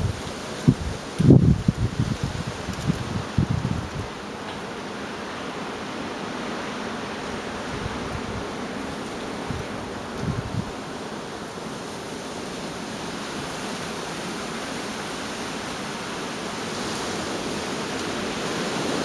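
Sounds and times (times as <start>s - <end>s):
storm wind rushing: 0.0s - 4.2s, 7.4s - 11.0s.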